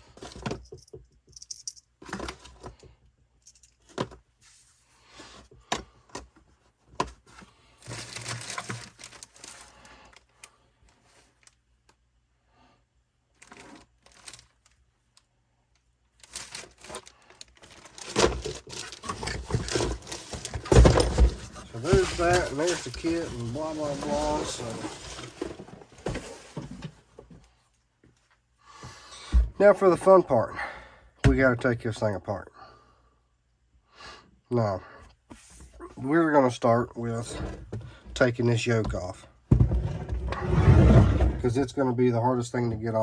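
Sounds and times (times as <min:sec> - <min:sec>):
small parts clicking and clinking: 0:00.6 - 0:01.9, 0:03.4 - 0:03.9
plastic packaging crinkling: 0:08.0 - 0:09.8, 0:16.2 - 0:20.7, 0:21.5 - 0:25.5.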